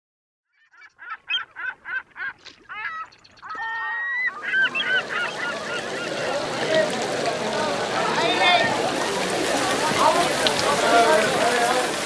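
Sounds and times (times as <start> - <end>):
honking bird calls: 0.5 - 7.0.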